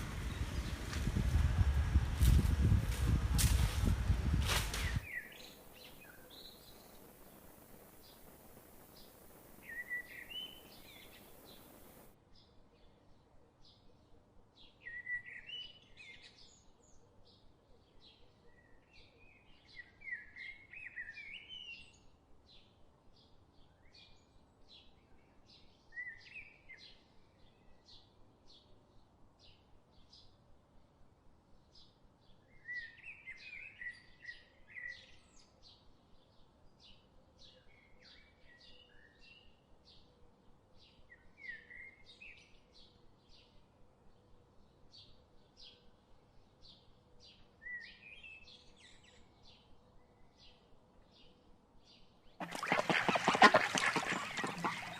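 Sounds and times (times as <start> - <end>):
songbird warbling: 52.4 - 54.9.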